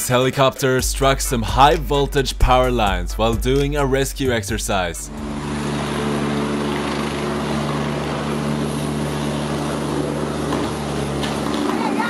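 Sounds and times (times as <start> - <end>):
helicopter engine and rotor drone: 5.1 - 12.0.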